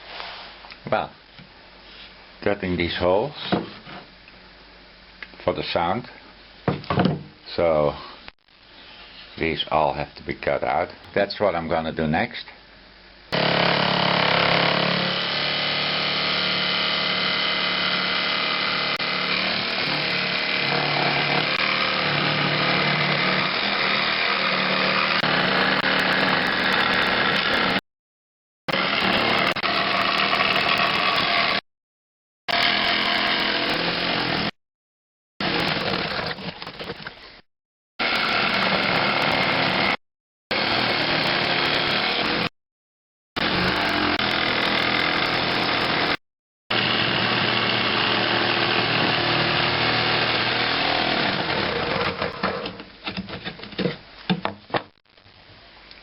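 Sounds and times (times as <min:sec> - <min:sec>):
power saw cutting wood: 0:13.3 - 0:27.8, 0:28.7 - 0:31.6, 0:32.5 - 0:34.6, 0:35.4 - 0:36.6, 0:38.0 - 0:42.5, 0:43.4 - 0:52.7.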